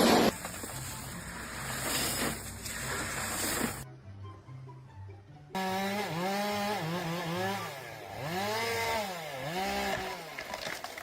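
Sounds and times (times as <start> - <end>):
small high-revving engine: 5.6 - 10.4.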